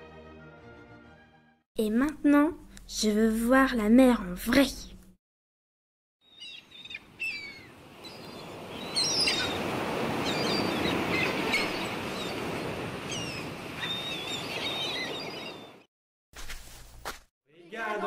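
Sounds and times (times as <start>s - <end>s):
high bird chirps: 6.2s - 9.6s
surf washing: 7.6s - 15.6s.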